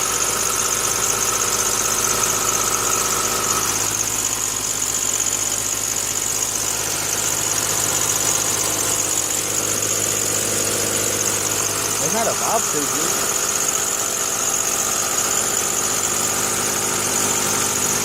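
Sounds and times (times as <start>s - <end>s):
car engine idling: 0.0s - 18.0s
faint tone above idle: 0.7s - 16.8s
high steady whine: 6.5s - 14.8s.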